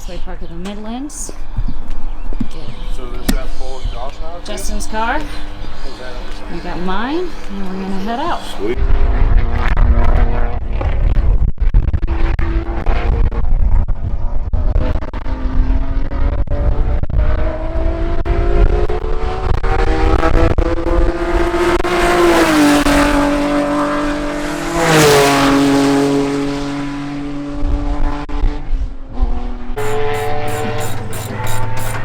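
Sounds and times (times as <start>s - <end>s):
race car engine accelerating: 0.7s - 11.0s, 14.7s - 32.0s.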